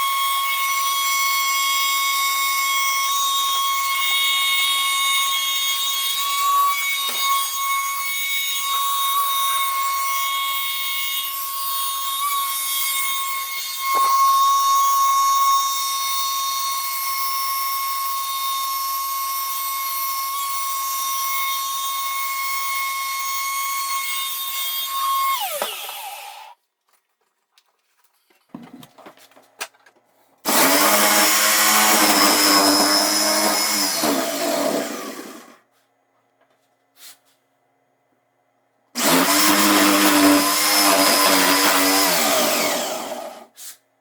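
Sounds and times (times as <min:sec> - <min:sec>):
electric power tool whining: 0:22.5 - 0:26.6, 0:30.4 - 0:35.6, 0:39.0 - 0:43.5.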